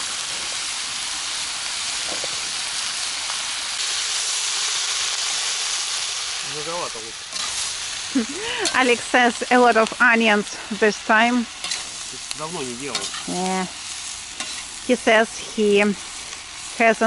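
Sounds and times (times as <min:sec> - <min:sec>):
meat and vegetables sizzling in oil: 0:00.0 - 0:17.0.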